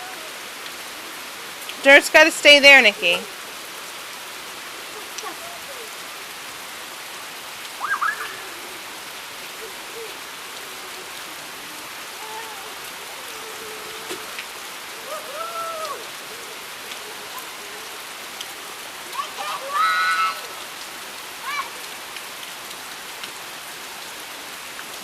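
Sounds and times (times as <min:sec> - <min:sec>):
steady rain falling: 0:00.0 - 0:25.0
brief high-pitched calls: 0:07.8 - 0:08.5.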